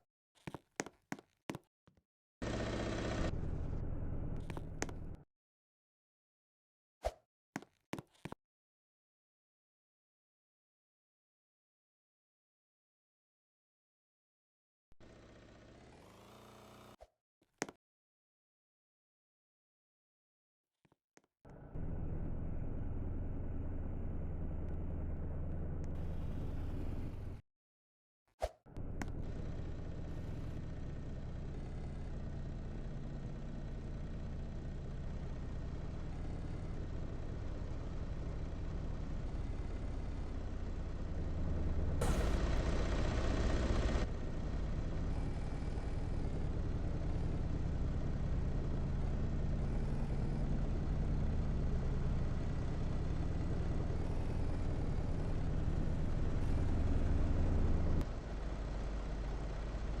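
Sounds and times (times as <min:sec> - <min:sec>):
vehicle engine and road noise: 0:02.4 - 0:05.2, 0:21.5 - 0:27.4, 0:28.8 - 1:00.0.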